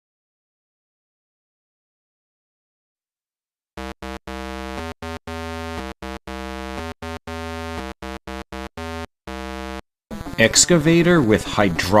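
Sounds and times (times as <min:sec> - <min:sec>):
synthesizer melody: 0:03.8 - 0:10.7.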